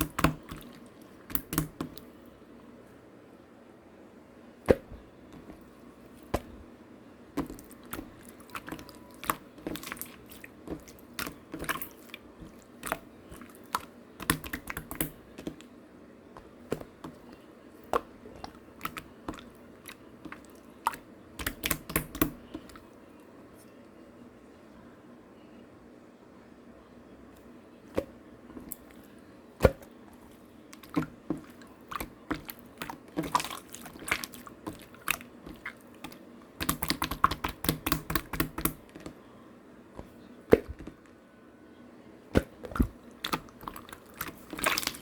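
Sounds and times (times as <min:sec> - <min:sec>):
slime squished by hand: 0:00.0 - 0:02.1, 0:04.6 - 0:06.6, 0:07.3 - 0:15.7, 0:16.4 - 0:22.9, 0:29.6 - 0:39.2, 0:40.0 - 0:41.0, 0:42.4 - 0:45.0.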